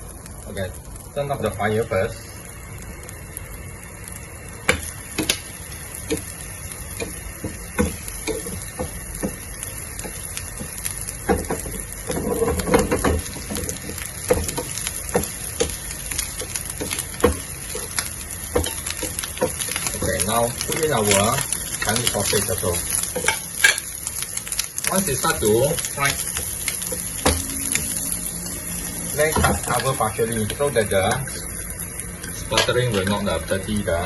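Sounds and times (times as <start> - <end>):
shrimp sizzling in oil: 0.0 - 34.0
taps and knocks in pan: 7.0 - 9.4, 10.0 - 13.7, 14.3 - 15.8.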